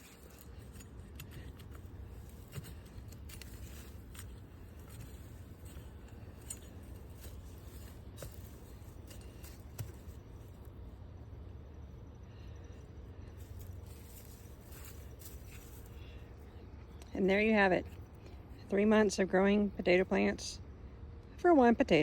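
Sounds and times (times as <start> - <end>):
hand tool scraping through soil: 0.0 - 10.6, 13.4 - 16.0.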